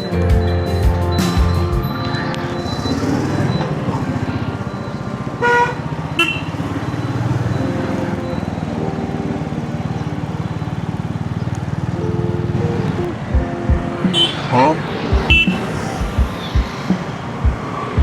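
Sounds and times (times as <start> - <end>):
motorcycle engine running: 1.4 - 18.0
vehicle horn honking: 5.3 - 8.2, 14.1 - 15.8.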